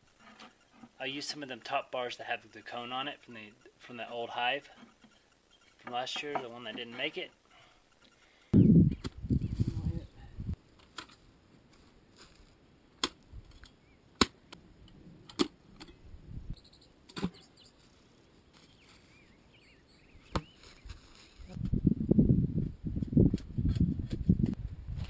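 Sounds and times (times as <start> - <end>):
wood knocks and clicks: 5.8 - 6.9.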